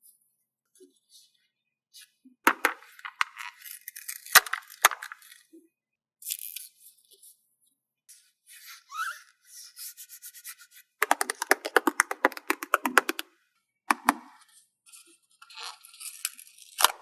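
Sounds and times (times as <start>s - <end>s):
sticker sheets crinkling: 4.4s - 5.3s, 11.0s - 13.2s
sharp taps: 11.0s - 13.2s, 13.9s - 14.3s.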